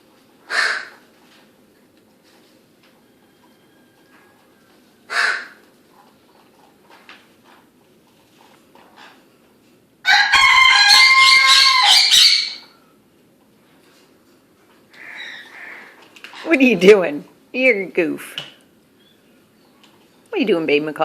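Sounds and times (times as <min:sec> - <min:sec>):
bird crowing call: 0:03.1 - 0:05.6, 0:10.1 - 0:12.8, 0:15.0 - 0:16.0.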